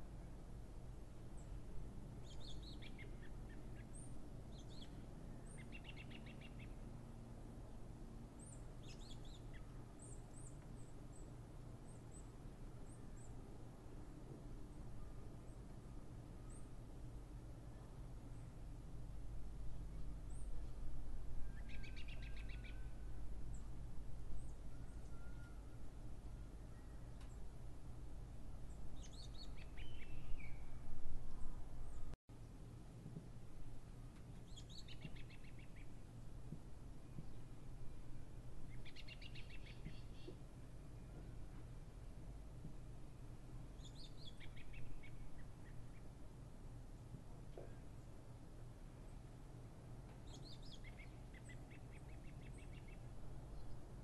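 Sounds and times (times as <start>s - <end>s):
low steady hum: 0.0s - 54.0s
small birds chirping: 2.2s - 6.8s, 8.4s - 12.3s, 28.7s - 30.8s, 34.4s - 36.0s, 38.7s - 40.4s, 43.7s - 46.2s, 50.2s - 53.8s.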